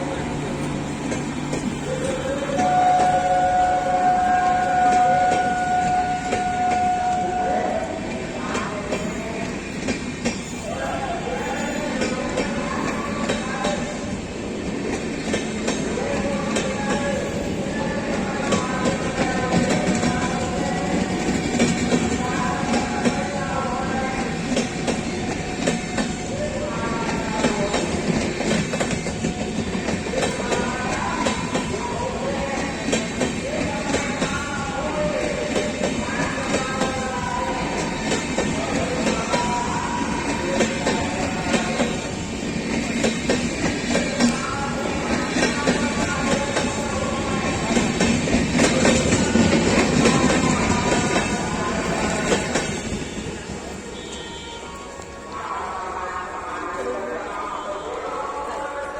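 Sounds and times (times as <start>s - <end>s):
train rumbling past: 0.0s - 58.9s
train wheels clacking over joints: 27.0s - 53.3s.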